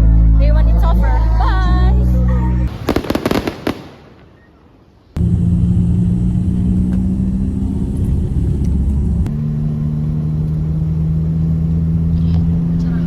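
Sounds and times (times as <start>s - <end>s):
vehicle engine humming: 5.2s - 13.0s.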